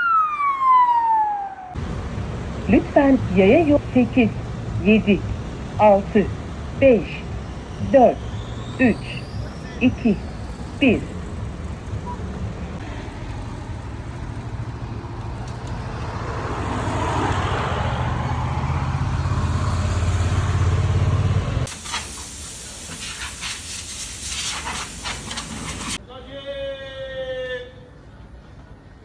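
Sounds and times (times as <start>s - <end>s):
vehicle engine hum: 0.0s - 26.0s
scattered clicks: 14.2s - 16.2s
steady hiss: 21.7s - 26.0s.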